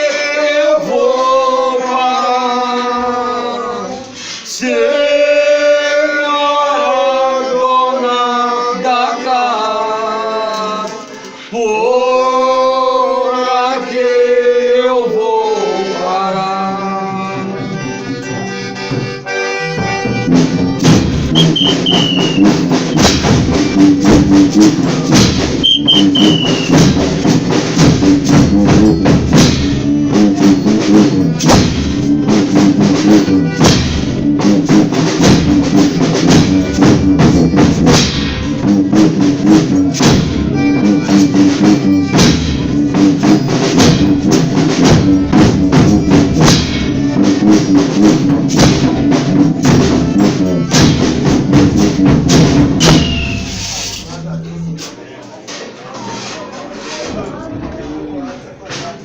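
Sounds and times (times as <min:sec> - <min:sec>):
group singing together: 0:00.0 - 0:17.7
drums and instruments playing fast beat: 0:17.6 - 0:55.0.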